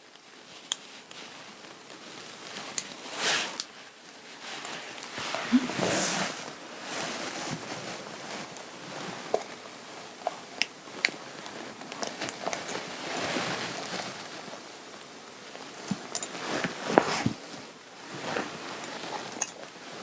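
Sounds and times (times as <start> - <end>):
fabric rustling: 1.2 - 10.0, 16.2 - 20.0.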